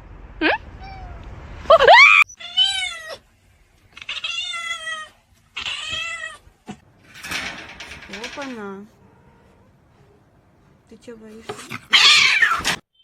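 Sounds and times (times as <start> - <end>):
cat meowing: 11.7 - 12.8.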